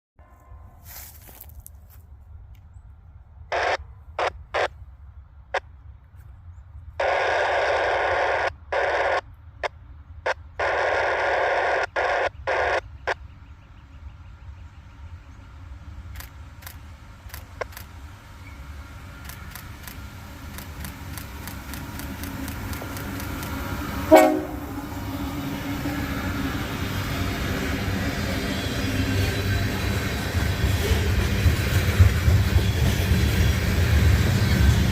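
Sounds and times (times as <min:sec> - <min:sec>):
freight train rumbling: 0:00.2 - 0:34.9
scanner radio static bursts: 0:03.5 - 0:04.7, 0:07.0 - 0:13.2
train horn blast: 0:23.6 - 0:30.0.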